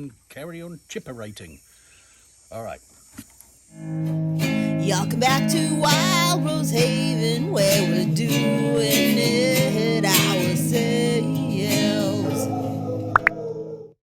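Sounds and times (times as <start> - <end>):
strummed acoustic guitar: 3.8 - 12.8
person singing: 4.4 - 13.3.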